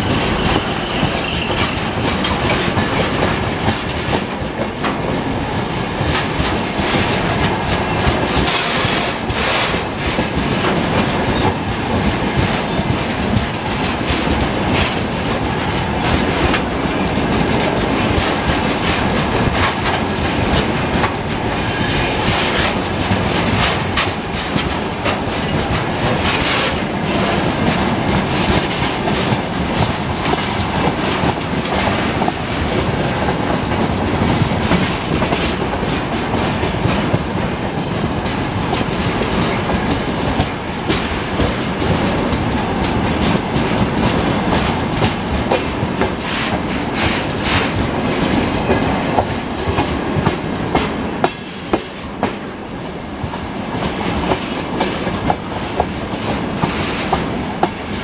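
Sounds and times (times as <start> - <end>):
freight train rumbling past: 0.0 - 58.0
wheels clattering over rail joints: 0.0 - 58.0.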